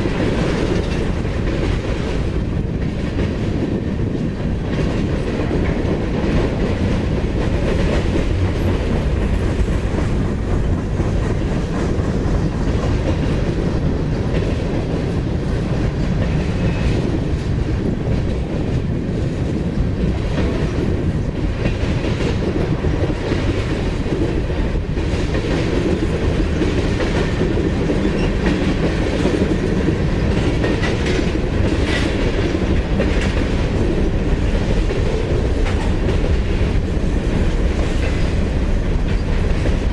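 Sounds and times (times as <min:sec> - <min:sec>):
train wheels on rails: 0:00.0 - 0:39.9.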